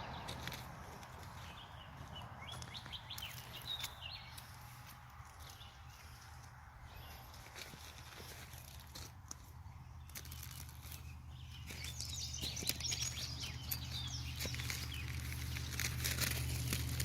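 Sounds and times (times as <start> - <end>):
rustling and crackling: 13.6 - 17.0.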